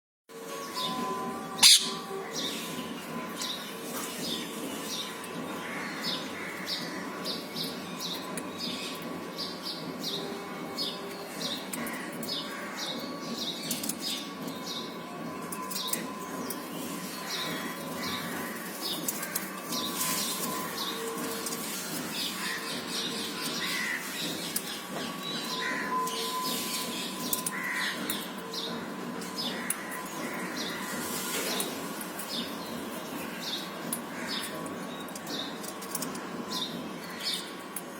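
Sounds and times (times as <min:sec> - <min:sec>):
harsh parakeet calls: 0:01.6 - 0:02.0
parakeets chirping: 0:01.6 - 0:02.0.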